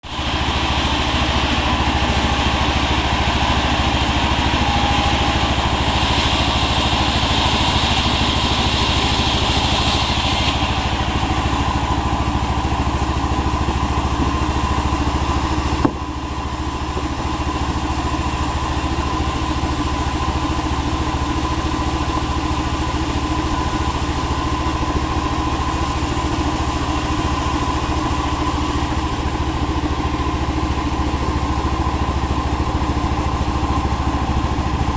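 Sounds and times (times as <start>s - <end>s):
hiss: 0.1s - 34.9s
sharp knock: 15.8s - 16.2s.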